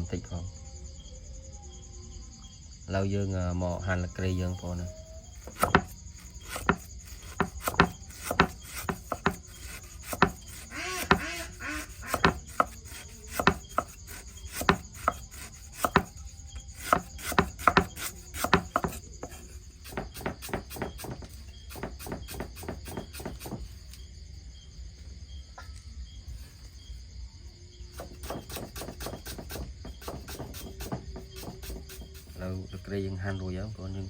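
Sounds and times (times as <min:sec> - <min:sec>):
knife chopping on cutting board: 0:05.4 - 0:23.6, 0:28.0 - 0:32.4.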